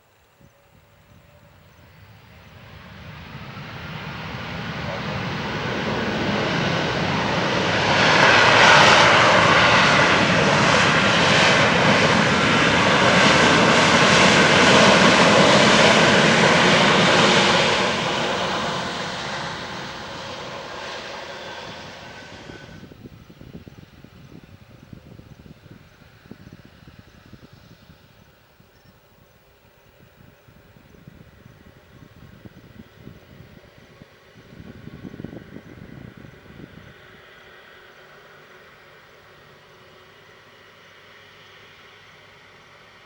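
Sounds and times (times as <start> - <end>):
jet airliner passing by: 0.0 - 43.0.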